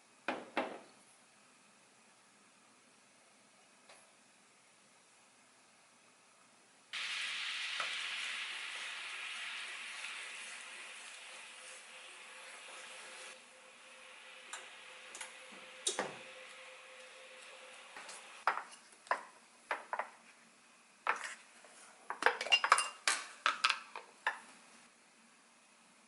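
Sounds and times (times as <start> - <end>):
dishes and cutlery clinking: 22.1 - 24.4.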